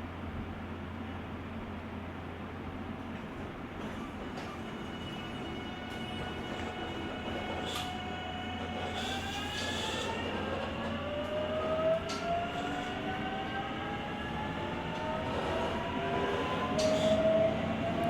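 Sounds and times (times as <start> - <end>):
train running rumble: 0.0 - 18.0.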